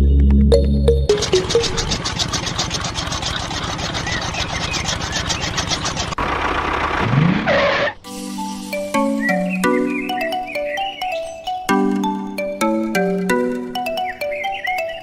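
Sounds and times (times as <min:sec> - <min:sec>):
music: 0:00.0 - 0:01.8, 0:08.0 - 0:15.0
engine chugging: 0:00.5 - 0:08.0
engine revving: 0:00.9 - 0:08.0.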